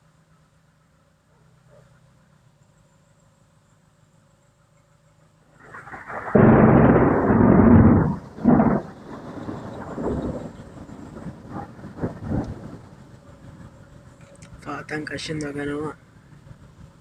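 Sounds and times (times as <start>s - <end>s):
thunder crash and rumble: 5.6s - 13.0s.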